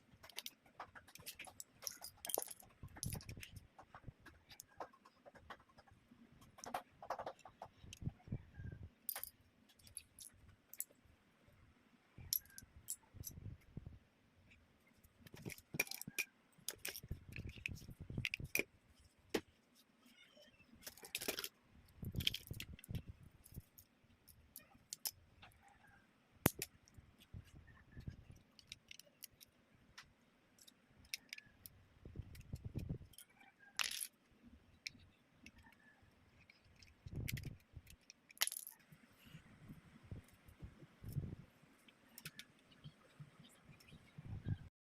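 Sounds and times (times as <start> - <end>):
plastic toy bricks clicking: 0.1 - 8.2, 15.2 - 18.7, 20.8 - 25.2, 26.4 - 27.0, 28.0 - 29.6, 30.6 - 34.2, 34.8 - 38.8, 42.1 - 42.6.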